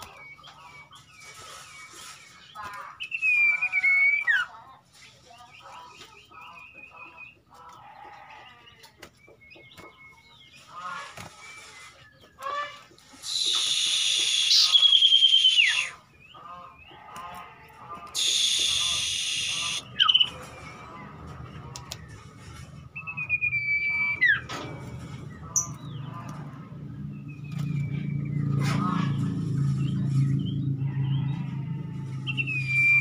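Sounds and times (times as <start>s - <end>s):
harsh rasping bird call: 12.4s - 16.0s, 18.1s - 20.3s
bird chirps and whistles: 13.2s - 16.0s, 18.2s - 20.3s, 23.0s - 24.4s, 32.4s - 33.0s.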